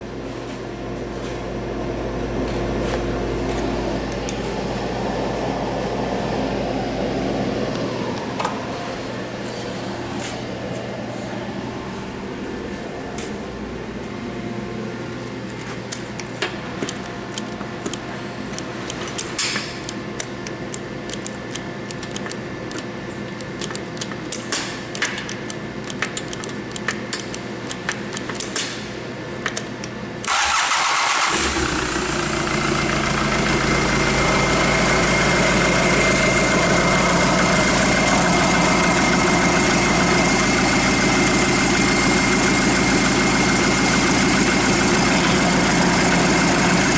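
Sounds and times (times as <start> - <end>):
steady hum: 0.0 - 30.3, 31.4 - 46.9
diesel engine starting and idling: 30.2 - 46.9.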